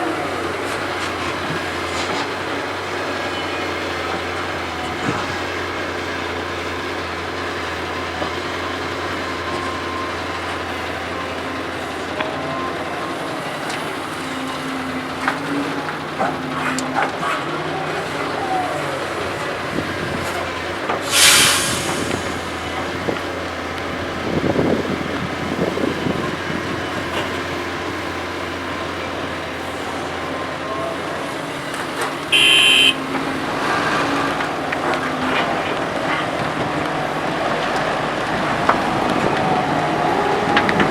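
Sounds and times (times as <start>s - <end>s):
heavy diesel machinery running: 0.0s - 40.9s
sharp hiss: 21.0s - 22.6s
short horn-like tone: 32.3s - 33.0s.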